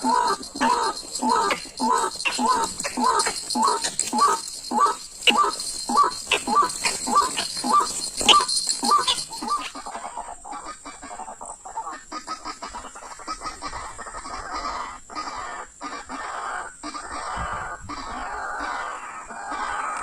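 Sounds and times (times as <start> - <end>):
rustling and clicking: 0.0 - 10.0
bird croaking calls: 0.0 - 20.0.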